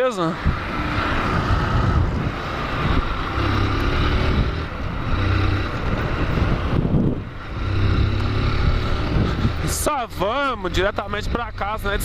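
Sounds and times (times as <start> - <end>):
wind noise on microphone: 0.4 - 9.8.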